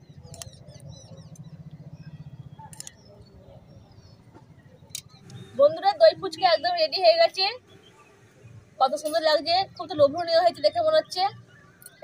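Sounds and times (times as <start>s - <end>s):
small birds chirping: 0.0s - 12.0s
sharp clicks: 0.2s - 1.5s, 2.6s - 3.1s.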